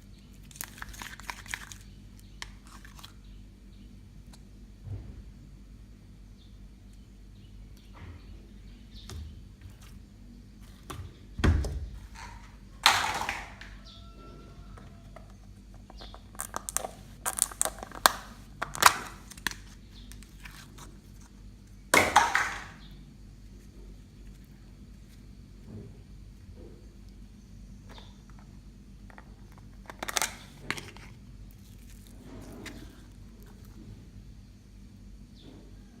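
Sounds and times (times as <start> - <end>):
sticky crackles and pops: 15.9 - 21.2
slime squelching: 30.4 - 33.8.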